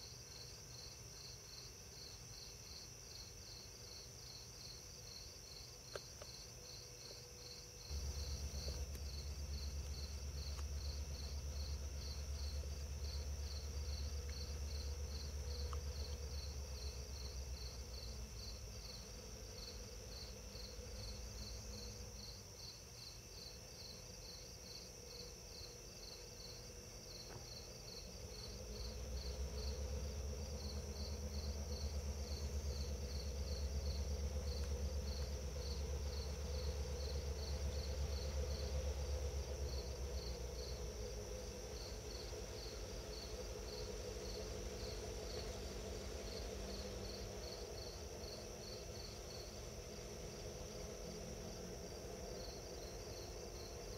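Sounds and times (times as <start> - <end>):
crickets chirping: 0.0 - 53.9
low rumble: 7.9 - 18.7, 28.5 - 48.5.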